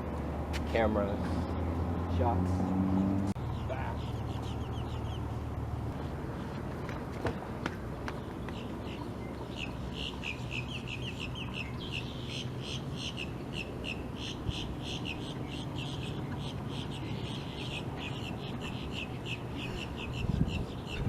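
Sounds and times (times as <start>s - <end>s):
bird chirping high calls: 3.4s - 5.4s, 8.4s - 21.0s.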